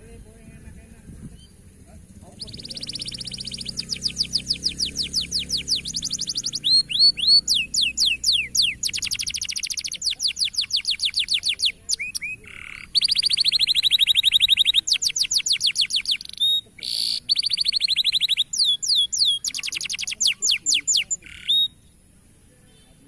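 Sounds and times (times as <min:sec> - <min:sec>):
canary singing trills: 0:00.8 - 0:23.0.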